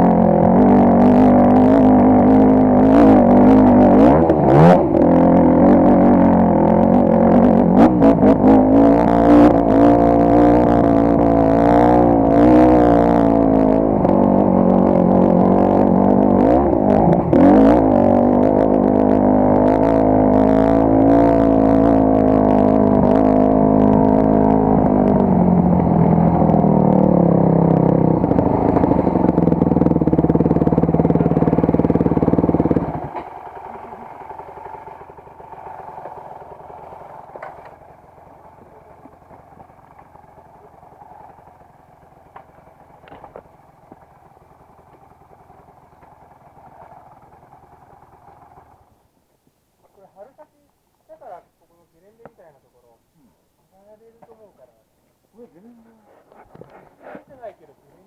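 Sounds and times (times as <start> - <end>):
motorcycle engine at low revs: 0.0 - 50.3
faint background noise: 48.2 - 58.0.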